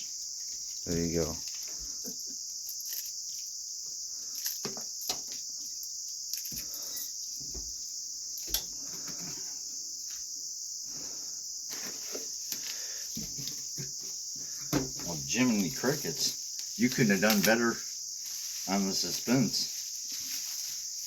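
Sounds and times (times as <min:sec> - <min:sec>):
crickets chirping: 0:00.0 - 0:21.0
gift package rustling: 0:15.2 - 0:17.8.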